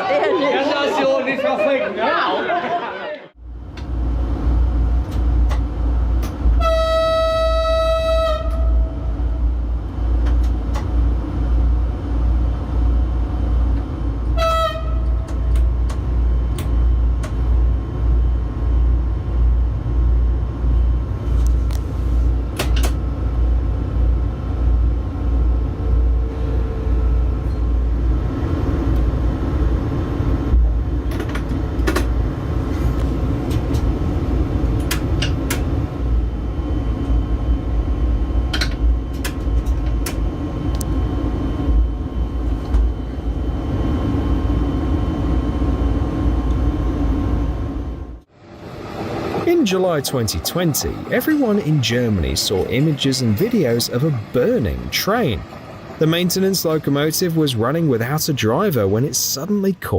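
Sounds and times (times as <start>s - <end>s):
train rumbling: 3.3s - 59.9s
train horn: 6.5s - 9.0s, 14.3s - 15.3s.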